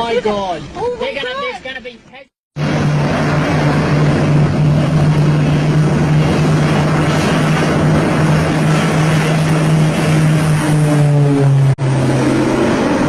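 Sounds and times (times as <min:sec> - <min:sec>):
loud engine drone: 0:02.6 - 0:13.0.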